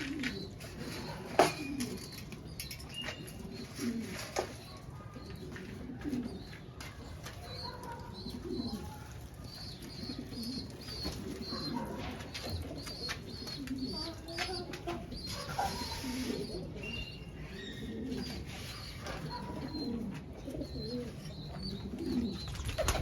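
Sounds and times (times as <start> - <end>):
pigeons cooing: 0.0 - 23.0
wings flapping: 22.5 - 23.0.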